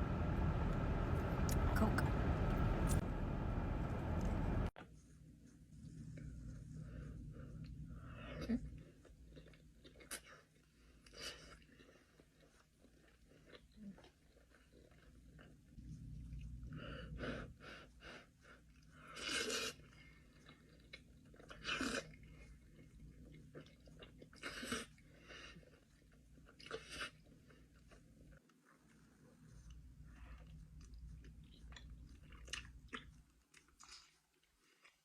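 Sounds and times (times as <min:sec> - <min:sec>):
wet chewing: 0:18.6 - 0:35.0.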